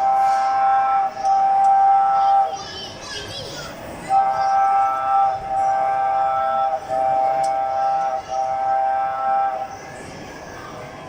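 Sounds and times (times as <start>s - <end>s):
train whistle blasts: 0.0s - 2.5s, 4.1s - 10.0s.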